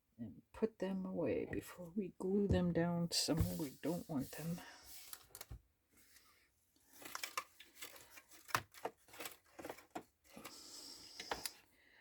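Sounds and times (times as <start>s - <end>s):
paper rustling: 3.3s - 6.2s, 6.9s - 10.6s.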